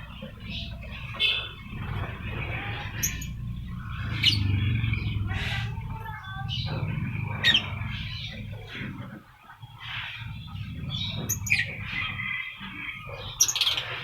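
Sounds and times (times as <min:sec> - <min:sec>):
steady low rumble: 0:00.0 - 0:13.4
lovebirds chirping and squawking: 0:00.0 - 0:14.0.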